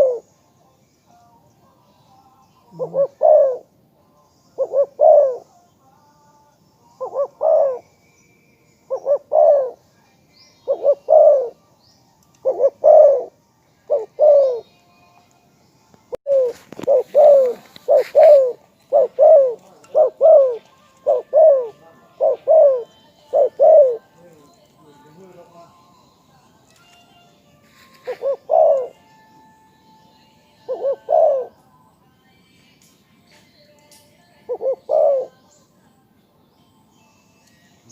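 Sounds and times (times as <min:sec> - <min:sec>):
dove cooing: 0:00.0 - 0:00.4, 0:02.6 - 0:03.8, 0:04.6 - 0:05.5, 0:07.0 - 0:07.8, 0:08.9 - 0:09.8, 0:10.6 - 0:11.6, 0:12.4 - 0:14.7, 0:16.3 - 0:24.3, 0:28.0 - 0:29.1, 0:30.6 - 0:31.6, 0:34.5 - 0:35.4.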